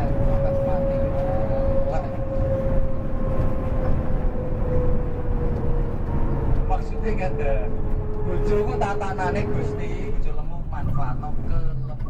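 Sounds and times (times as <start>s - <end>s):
coach engine and road rumble: 0.0s - 12.0s.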